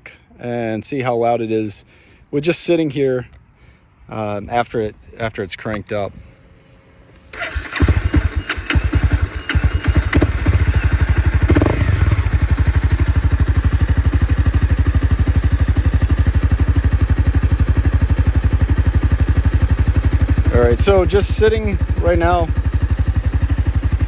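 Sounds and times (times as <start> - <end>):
motorcycle engine starting: 6.4 - 24.0
motorcycle engine idling: 7.3 - 24.0.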